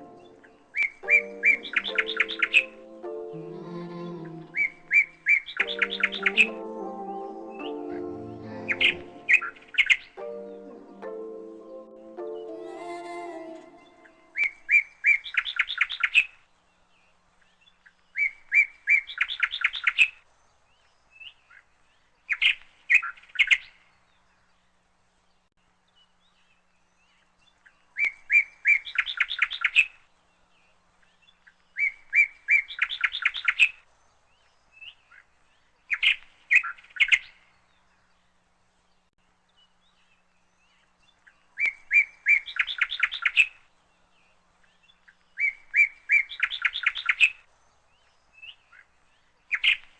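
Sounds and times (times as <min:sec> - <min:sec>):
bird singing chirps and trill: 0:00.0 - 0:16.3, 0:41.5 - 0:43.6, 0:44.8 - 0:48.8.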